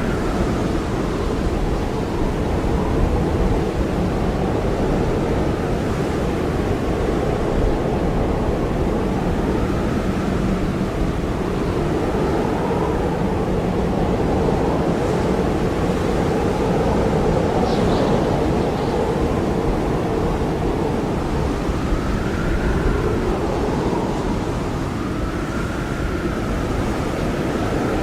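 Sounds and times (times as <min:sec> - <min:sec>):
blizzard wind rushing: 0:00.0 - 0:28.0
wavering wind whistle: 0:07.3 - 0:28.0.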